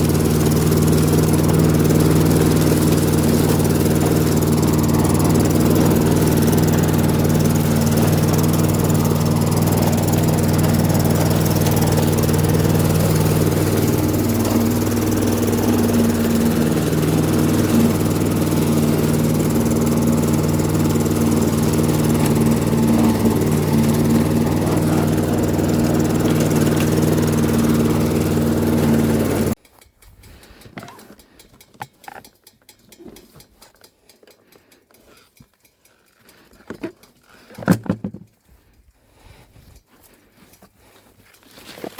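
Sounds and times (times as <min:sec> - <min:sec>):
small petrol engine running: 0:00.0 - 0:29.8
faint ticks and rustles: 0:29.6 - 0:37.5, 0:38.3 - 0:41.9.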